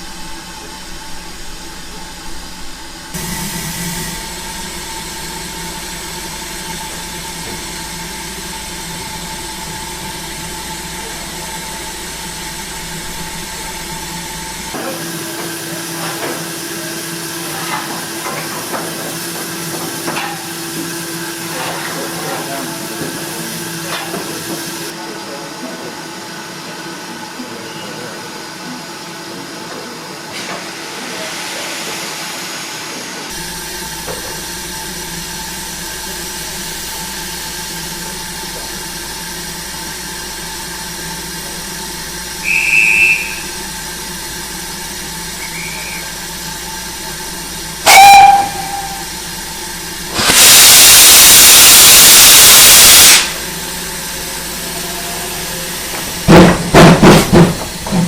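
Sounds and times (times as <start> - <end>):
steam locomotive hissing: 0.0 - 58.0
loud blast of escaping steam: 3.1 - 9.4, 42.4 - 57.9
sharp whistle toot: 42.4 - 43.6, 45.4 - 46.2, 47.9 - 49.2, 50.2 - 53.4
high steam whistle: 42.4 - 43.9, 45.3 - 46.7, 47.8 - 56.0.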